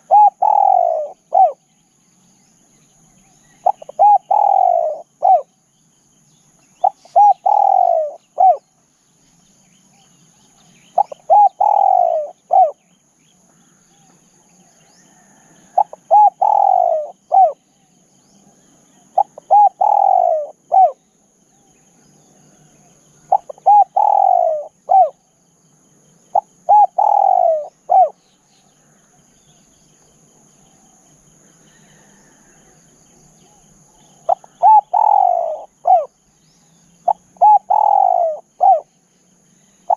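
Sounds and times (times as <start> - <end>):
dove cooing: 0.0 - 1.7, 3.5 - 5.5, 6.8 - 8.7, 10.9 - 12.9, 13.9 - 17.7, 18.9 - 21.0, 22.6 - 25.2, 26.3 - 28.2, 33.4 - 36.2, 37.0 - 38.9.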